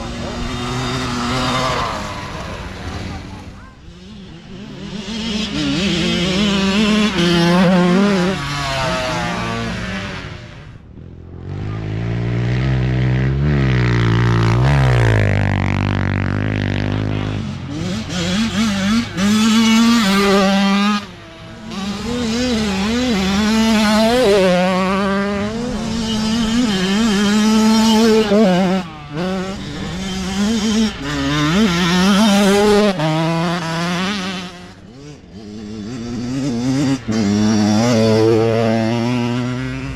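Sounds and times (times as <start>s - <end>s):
deeper-pitched bike passing: 0.0s - 39.9s
dirt bike engines revving past: 0.0s - 39.9s.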